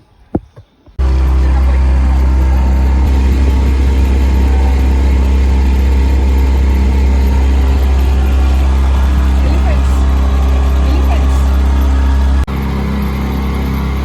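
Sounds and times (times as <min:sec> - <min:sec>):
engine running loud: 0:01.0 - 0:14.0.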